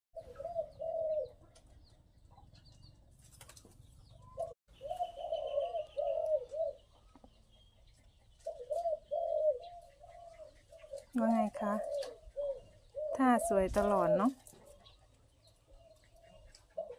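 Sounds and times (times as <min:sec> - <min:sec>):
dove cooing: 0:00.2 - 0:01.6, 0:04.2 - 0:07.3, 0:08.4 - 0:15.0, 0:15.7 - 0:16.9
small birds chirping: 0:00.2 - 0:16.9.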